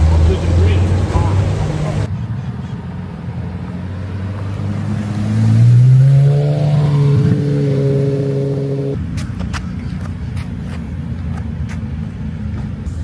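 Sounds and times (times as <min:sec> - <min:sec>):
car engine running: 0:00.0 - 0:02.1.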